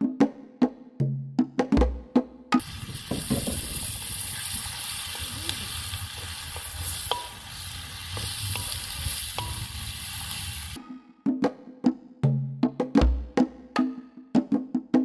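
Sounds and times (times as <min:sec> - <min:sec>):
vegetables sizzling in oil: 0:02.6 - 0:10.8.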